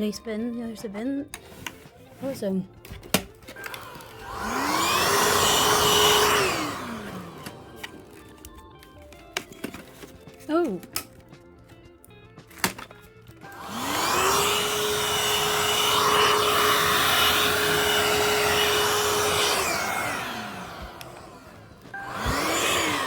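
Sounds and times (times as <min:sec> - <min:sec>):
vacuum cleaner motor whining: 0:03.5 - 0:10.1, 0:13.4 - 0:23.0.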